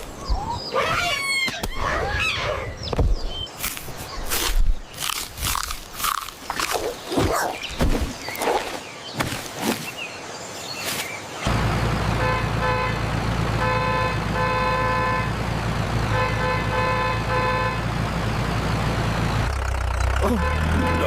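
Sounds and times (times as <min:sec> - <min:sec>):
vehicle engine rumbling: 0:11.4 - 0:21.0
vehicle horn toots: 0:12.1 - 0:15.4, 0:16.0 - 0:18.0, 0:20.2 - 0:21.0.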